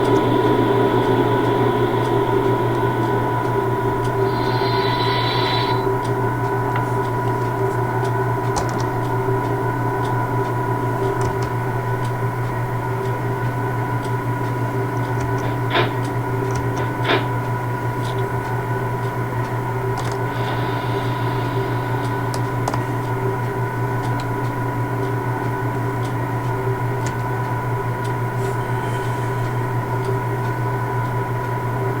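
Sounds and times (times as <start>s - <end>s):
air hiss: 0.0s - 6.0s, 20.2s - 23.2s
locomotive hum: 0.0s - 32.0s.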